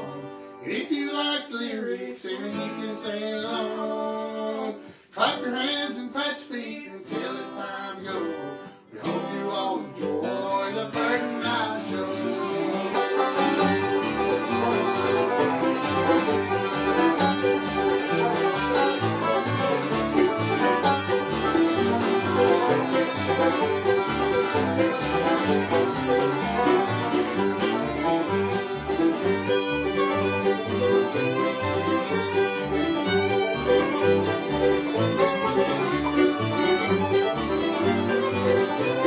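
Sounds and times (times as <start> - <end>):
guitar: 0.0 - 0.9, 2.2 - 39.0
fiddle: 0.0 - 1.2, 2.2 - 39.0
banjo: 0.0 - 39.0
walking bass line: 13.0 - 39.0.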